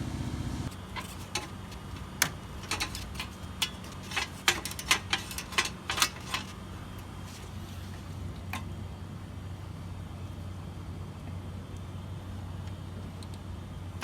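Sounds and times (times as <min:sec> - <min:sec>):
steady low hum: 0:00.0 - 0:14.0
hand tools clicking: 0:00.7 - 0:07.5.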